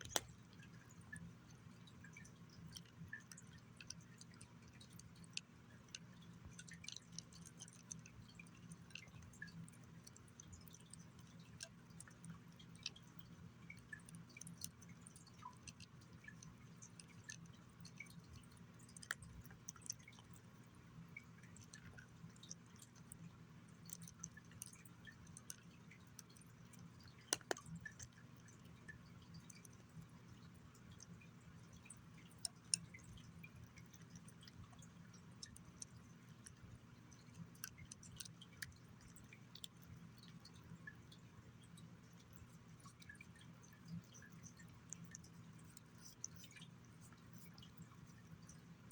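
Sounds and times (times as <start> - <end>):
sharp clicks: 0.0 - 0.3, 27.3 - 27.6
cat chewing and licking: 0.0 - 48.9.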